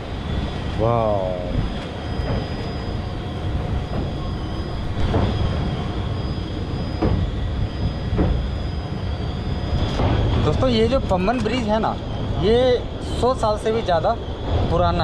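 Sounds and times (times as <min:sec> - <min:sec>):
train wheels rumbling on rails: 0:00.0 - 0:15.0
sharp knocks: 0:05.0 - 0:05.5, 0:07.0 - 0:07.4, 0:08.1 - 0:08.5.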